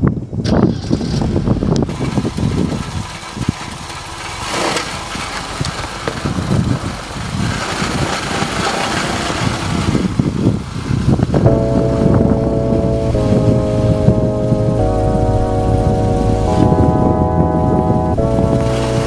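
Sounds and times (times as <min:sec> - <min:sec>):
car engine idling: 0:00.7 - 0:07.2.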